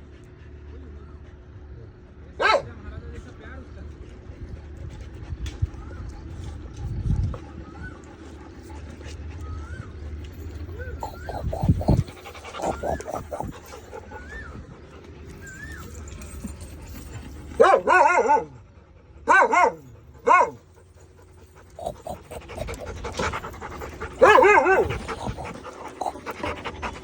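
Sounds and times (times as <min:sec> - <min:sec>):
dog panting: 0:04.1 - 0:27.0
dog whining and warbling: 0:09.4 - 0:18.2, 0:21.2 - 0:27.0.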